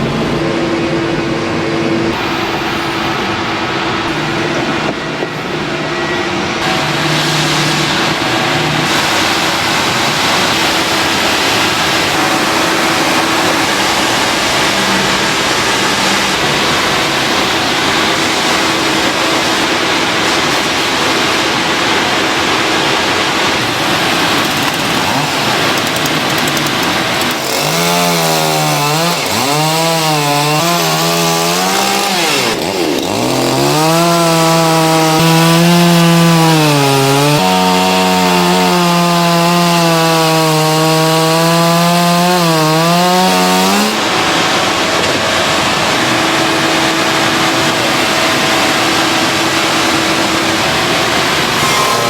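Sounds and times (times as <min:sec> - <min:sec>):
factory machinery hum: 0:00.0 - 0:39.0, 0:43.6 - 0:52.0
machinery hiss: 0:02.1 - 0:29.6.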